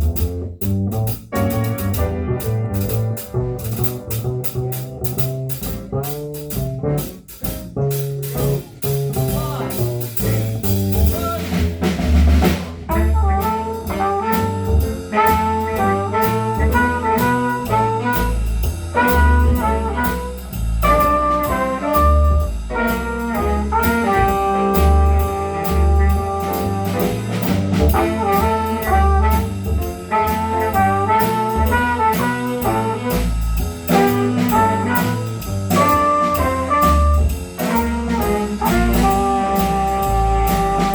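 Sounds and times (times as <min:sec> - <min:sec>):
jazz band playing: 0:00.0 - 0:40.9
horns playing held chords: 0:19.0 - 0:27.2.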